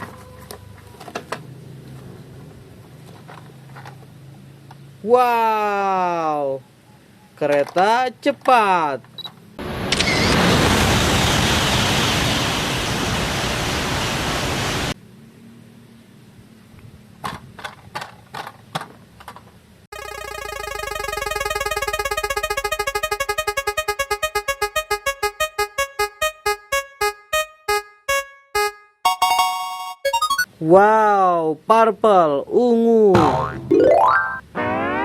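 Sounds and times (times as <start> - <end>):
pulsing synthesizer tone: 20.0 - 30.4.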